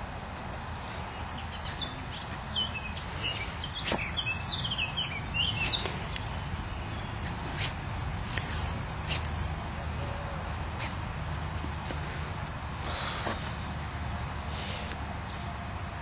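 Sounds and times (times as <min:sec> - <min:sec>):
low outdoor background rumble: 0:00.0 - 0:16.0
small bird chirping: 0:01.0 - 0:09.4.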